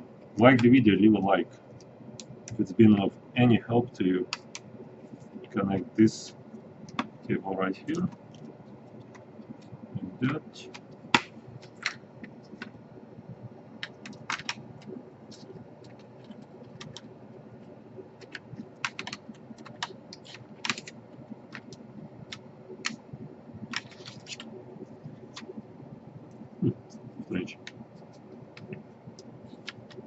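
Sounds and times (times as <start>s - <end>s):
plastic laptop parts clicking: 13.8s - 14.6s, 18.2s - 23.0s, 23.7s - 24.5s.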